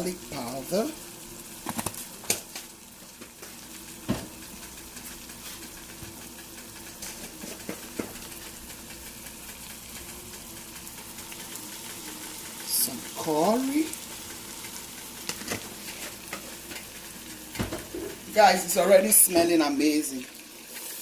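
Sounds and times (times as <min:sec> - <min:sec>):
steady hum: 0:00.0 - 0:20.0
onion and garlic sizzling in a pan: 0:00.0 - 0:21.0
utensils knocking against a pan: 0:07.0 - 0:08.2, 0:15.2 - 0:16.9, 0:17.6 - 0:18.2.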